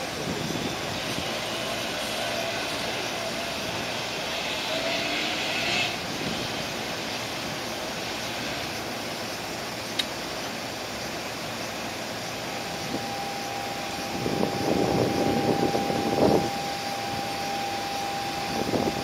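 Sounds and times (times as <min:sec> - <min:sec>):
electric trains whirring: 0:00.0 - 0:19.0
sharp click: 0:09.9 - 0:10.2.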